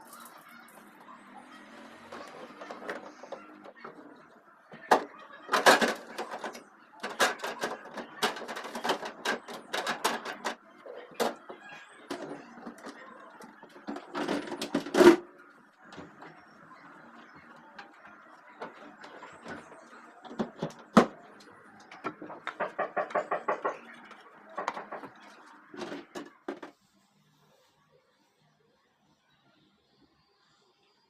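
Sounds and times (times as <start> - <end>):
items clattering and knocking: 1.6 - 26.8.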